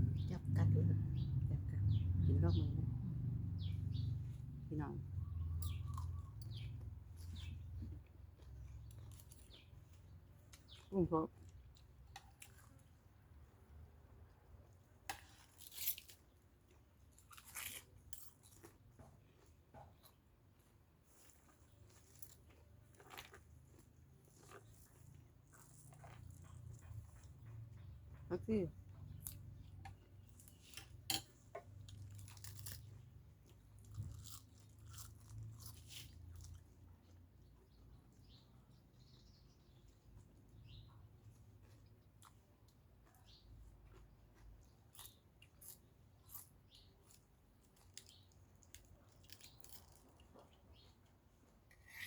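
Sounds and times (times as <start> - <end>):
faint low hum: 0.0 - 12.7
person chewing and crunching: 5.4 - 13.1, 15.1 - 28.2, 28.9 - 37.7, 41.2 - 52.0.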